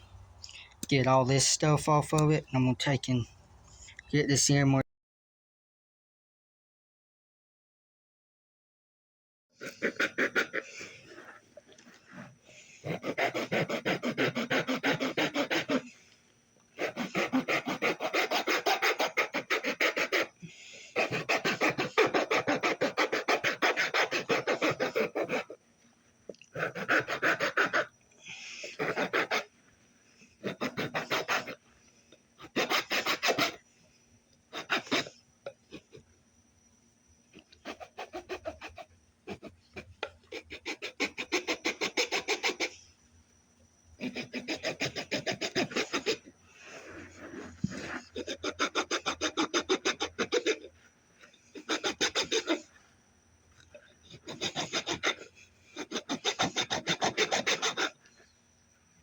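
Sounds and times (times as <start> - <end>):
rasp scraping wood: 9.6 - 16.1, 16.8 - 25.6, 26.6 - 27.9, 28.6 - 29.5, 30.4 - 31.6, 32.4 - 33.6, 34.5 - 35.1, 37.6 - 42.7, 44.0 - 52.7, 54.1 - 58.2.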